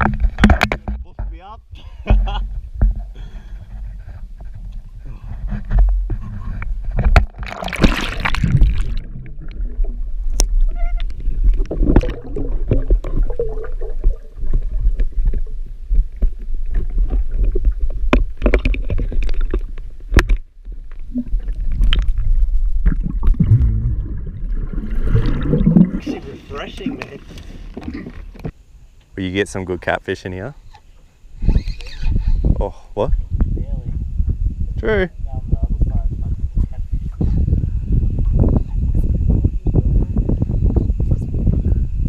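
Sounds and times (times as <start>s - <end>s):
steady low rumble: 0.0s - 30.0s, 32.2s - 42.0s
water splashing against boat: 6.0s - 28.6s.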